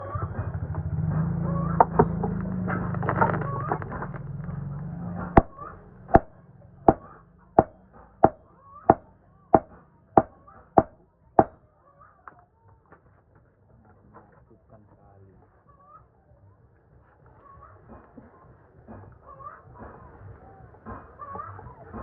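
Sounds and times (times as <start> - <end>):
hammer striking iron on anvil: 5.4 - 5.6, 6.2 - 11.6.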